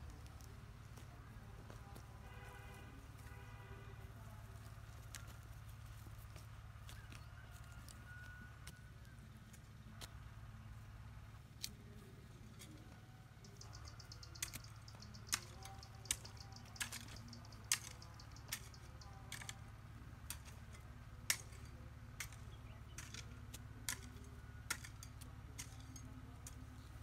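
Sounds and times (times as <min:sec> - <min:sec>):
fast high ticking: 0:13.4 - 0:19.6
sharp knocks and cracks: 0:20.3 - 0:26.6.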